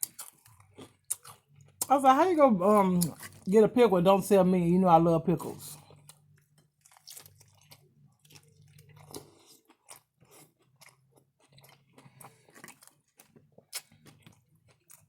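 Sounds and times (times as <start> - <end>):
chewing crunchy food: 0.0 - 1.9, 2.6 - 3.5, 5.7 - 15.0.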